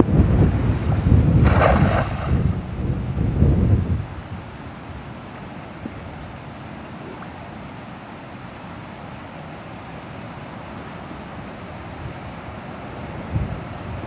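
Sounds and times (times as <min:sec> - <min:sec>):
wind rumbling on microphone: 0:00.0 - 0:06.4, 0:13.0 - 0:14.0.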